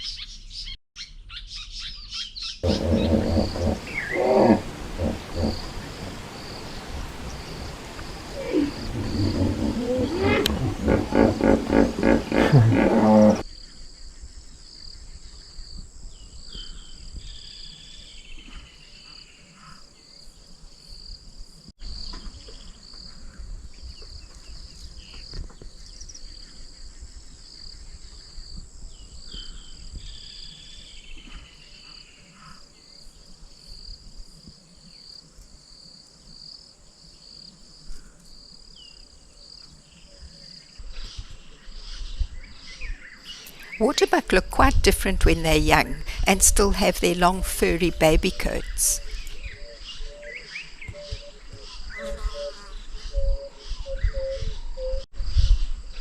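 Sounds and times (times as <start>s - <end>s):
insects chirping: 2.6s - 13.4s.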